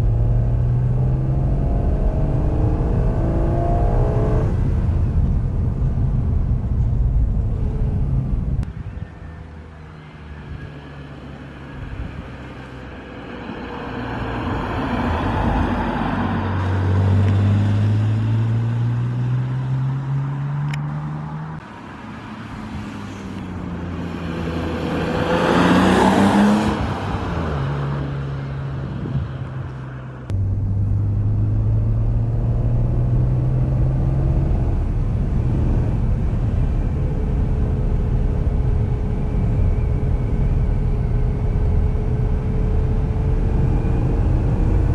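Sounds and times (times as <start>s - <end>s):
car engine accelerating hard: 0.0s - 8.7s, 23.8s - 44.9s.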